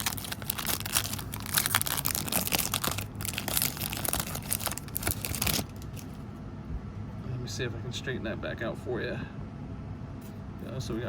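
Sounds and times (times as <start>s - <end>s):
wrapper crinkling and tearing: 0.0s - 6.2s.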